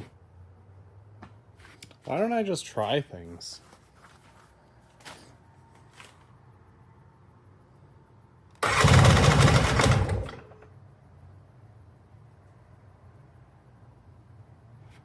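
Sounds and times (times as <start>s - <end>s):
electric starter cranking engine: 8.6s - 10.6s.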